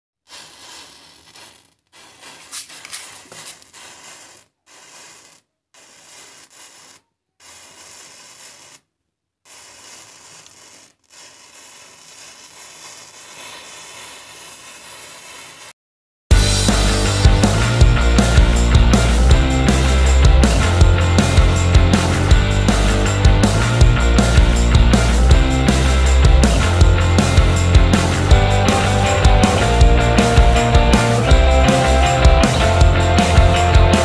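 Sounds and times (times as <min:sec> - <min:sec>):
matches igniting with fizzing hiss: 0:00.3 - 0:08.8, 0:09.5 - 0:15.8.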